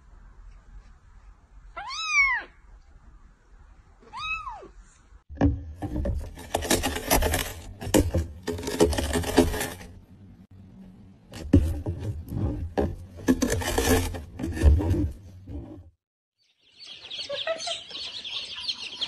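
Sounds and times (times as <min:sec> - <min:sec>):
kitten meowing: 0:01.8 - 0:02.6, 0:04.1 - 0:04.7.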